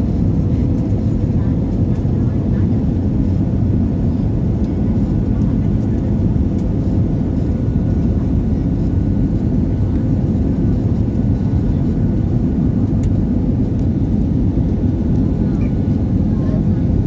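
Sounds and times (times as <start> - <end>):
airliner roaring on approach: 0.0 - 17.0.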